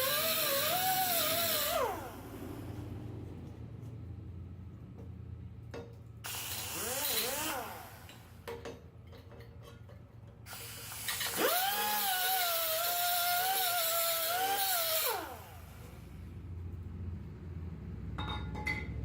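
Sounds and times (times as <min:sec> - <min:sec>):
air grinder high whine: 0:00.0 - 0:02.8, 0:06.3 - 0:08.4, 0:10.5 - 0:16.1
compressed air hissing: 0:06.3 - 0:07.2, 0:10.5 - 0:11.4.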